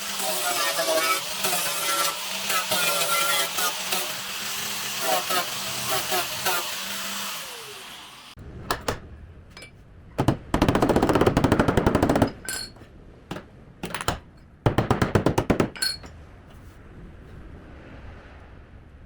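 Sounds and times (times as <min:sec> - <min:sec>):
clicks and knocks: 0:08.6 - 0:16.2
tool hammering rapidly: 0:10.2 - 0:12.6, 0:13.3 - 0:16.0.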